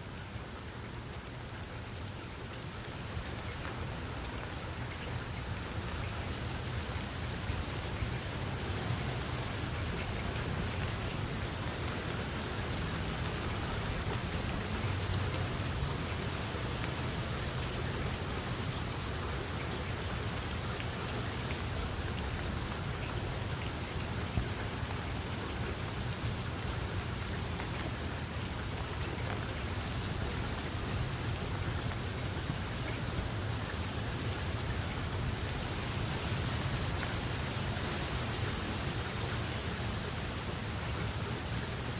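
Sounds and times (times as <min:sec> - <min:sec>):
steady rain: 0:00.0 - 0:41.9.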